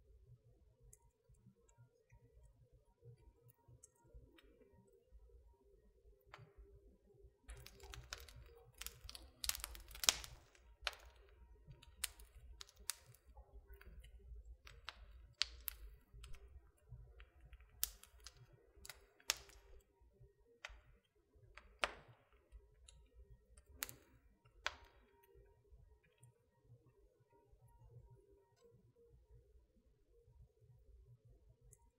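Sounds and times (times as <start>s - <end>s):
wood fire crackling: 7.5s - 19.9s, 20.6s - 25.4s.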